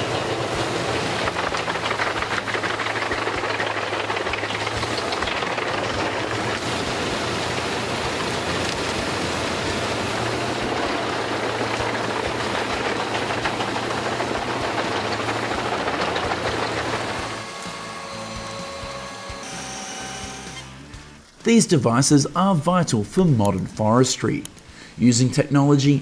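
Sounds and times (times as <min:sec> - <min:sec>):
wood crackling being chipped: 0:00.0 - 0:20.7
wood chipper engine hum: 0:00.0 - 0:21.4.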